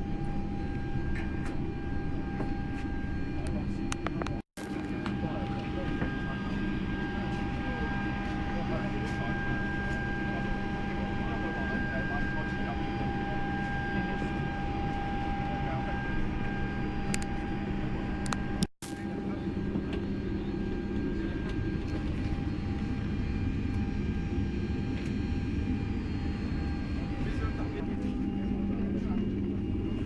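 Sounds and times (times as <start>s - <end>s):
steady mechanical hum: 0.0s - 30.0s
faint voices: 4.8s - 16.9s.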